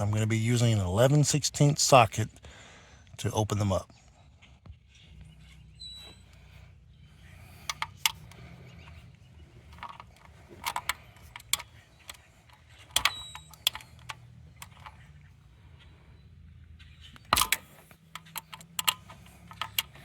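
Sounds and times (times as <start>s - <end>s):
socket wrench metallic clicks: 7.4s - 15.2s, 17.2s - 20.0s.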